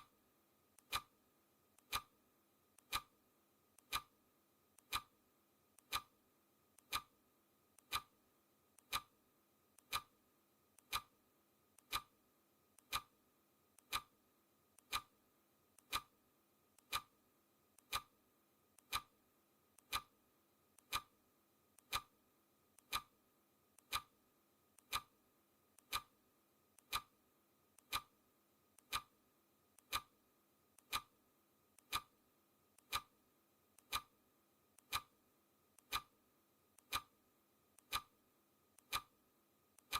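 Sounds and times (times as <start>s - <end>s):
clock ticking: 0.8s - 1.1s, 1.8s - 2.2s, 2.8s - 3.1s, 3.8s - 4.1s, 4.8s - 5.1s, 5.8s - 6.1s, 6.8s - 7.1s, 7.8s - 8.2s, 8.8s - 9.1s, 9.8s - 10.1s, 10.8s - 11.2s, 11.8s - 12.1s, 12.8s - 13.1s, 13.8s - 14.2s, 14.8s - 15.1s, 15.8s - 16.2s, 16.8s - 17.1s, 17.8s - 18.2s, 18.8s - 19.1s, 19.8s - 20.2s, 20.8s - 21.2s, 21.8s - 22.1s, 22.8s - 23.1s, 23.8s - 24.2s, 24.8s - 25.2s, 25.8s - 26.2s, 26.8s - 27.2s, 27.8s - 28.2s, 28.8s - 29.2s, 29.8s - 30.2s, 30.8s - 31.1s, 31.8s - 32.2s, 32.8s - 33.2s, 33.8s - 34.2s, 34.8s - 35.2s, 35.8s - 36.1s, 36.8s - 37.1s, 37.8s - 38.2s, 38.8s - 39.2s.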